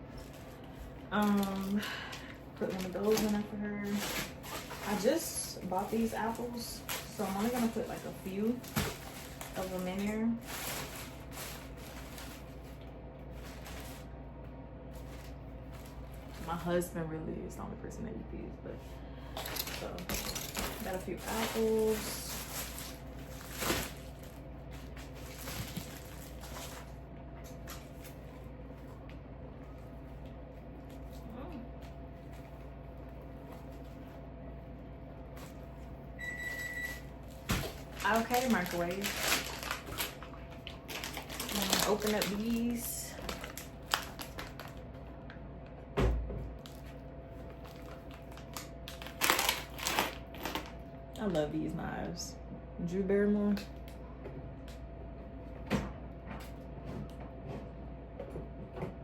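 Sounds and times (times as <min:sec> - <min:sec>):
packaging rustling crinkles: 0:00.0 - 0:14.2, 0:14.8 - 0:16.8, 0:19.3 - 0:28.4, 0:37.2 - 0:45.1, 0:46.6 - 0:50.8
steady low hum: 0:00.0 - 0:59.0
packaging clicks: 0:47.7 - 0:50.7.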